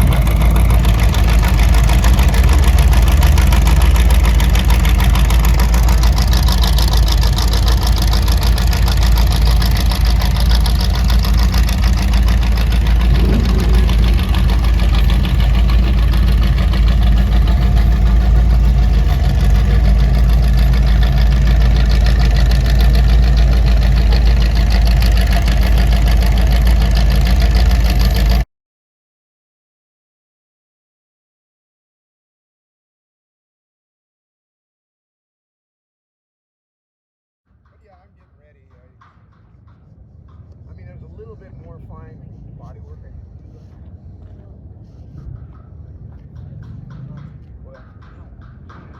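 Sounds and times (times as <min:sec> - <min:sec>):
car engine idling loudly: 0:00.0 - 0:28.4.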